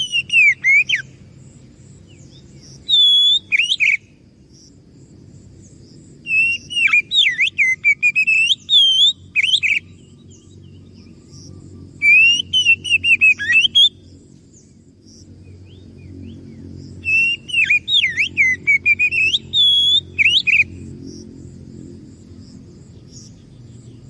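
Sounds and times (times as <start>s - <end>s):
bird whistled song: 0.0s - 1.2s, 2.1s - 4.2s, 6.2s - 14.8s, 15.4s - 20.9s
faint low hum: 0.0s - 24.0s.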